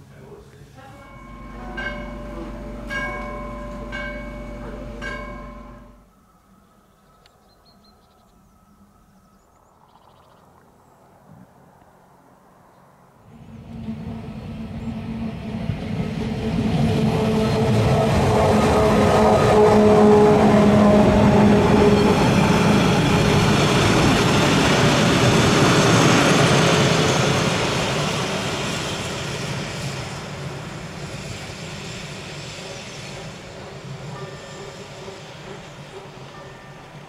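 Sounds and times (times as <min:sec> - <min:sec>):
freight train rumbling past: 0:00.0 - 0:06.4, 0:12.0 - 0:37.0
steady low hum: 0:00.1 - 0:07.1.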